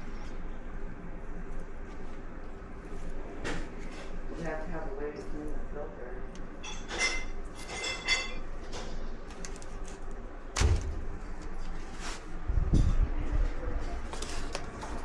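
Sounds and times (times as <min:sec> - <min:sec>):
metal tools clinking: 0:06.6 - 0:08.5.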